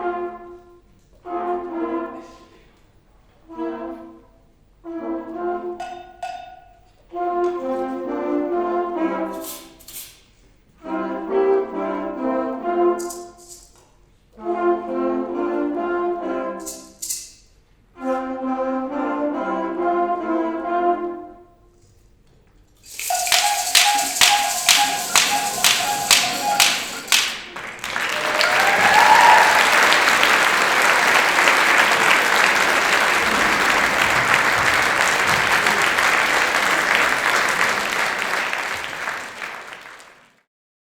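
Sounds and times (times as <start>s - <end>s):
brass band playing chords: 22.9s - 40.0s.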